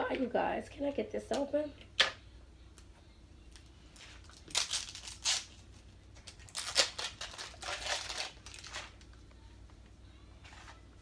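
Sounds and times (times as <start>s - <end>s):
packaging tearing and crinkling: 4.2s - 5.6s, 6.2s - 9.0s.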